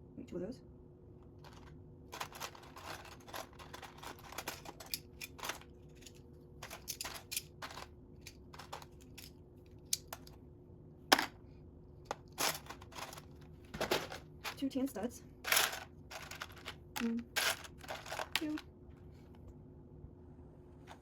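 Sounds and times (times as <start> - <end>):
plastic bricks clicking and rattling: 1.4 - 9.3, 15.5 - 18.6.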